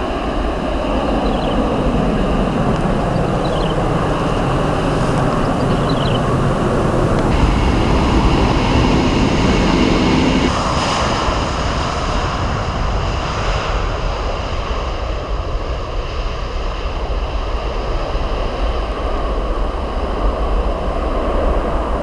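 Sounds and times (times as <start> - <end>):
jet engines roaring: 0.0 - 14.6
departing aircraft engine noise: 0.0 - 22.0.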